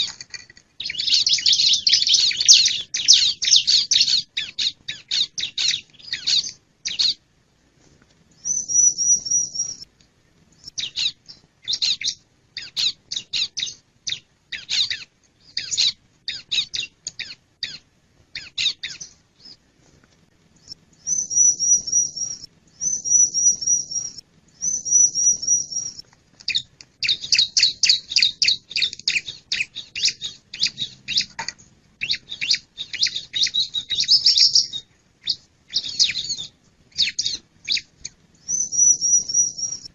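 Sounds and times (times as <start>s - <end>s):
bird chipping: 0.0s - 7.2s, 8.4s - 9.9s, 10.6s - 19.6s, 20.6s - 39.9s
bird buzzy trills: 35.7s - 39.9s.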